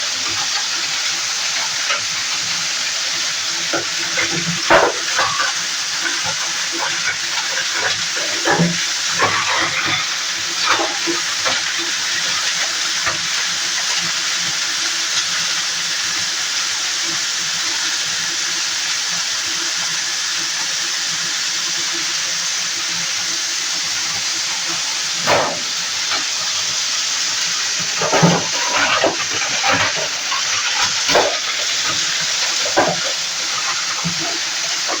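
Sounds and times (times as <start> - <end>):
plastic grinder whirring: 0.0 - 16.3, 22.2 - 35.0
plastic cracking and crunching: 27.5 - 35.0.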